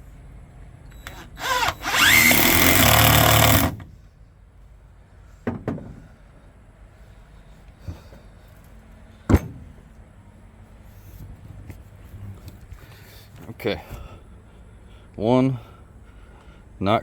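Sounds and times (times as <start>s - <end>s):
power drill drilling into wood: 1.1s - 3.8s
light knocks: 5.4s - 6.0s.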